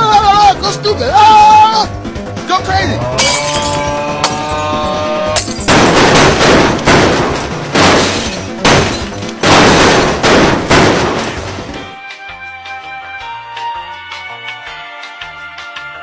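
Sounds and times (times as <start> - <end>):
background music: 0.0 - 16.0
loud crashes: 5.4 - 12.0.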